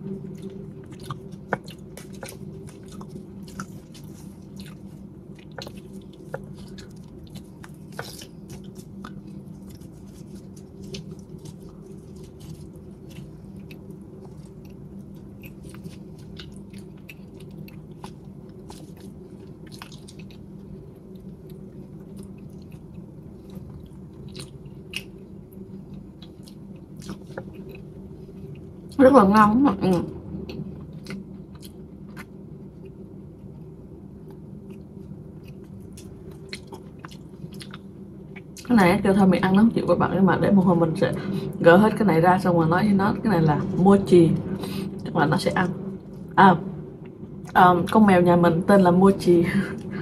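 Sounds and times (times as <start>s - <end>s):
biting and chewing: 0.0s - 29.0s, 34.2s - 38.7s
low hum: 0.0s - 50.0s.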